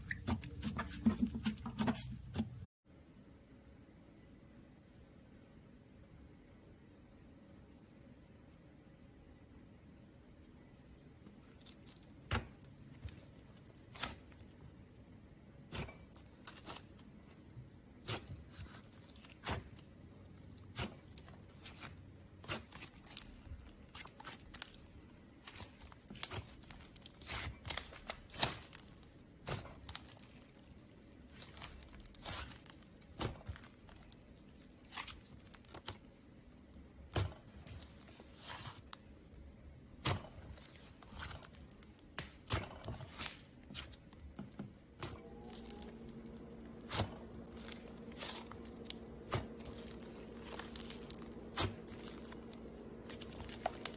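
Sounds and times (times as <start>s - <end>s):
slime popping and crackling: 45.0s - 53.9s.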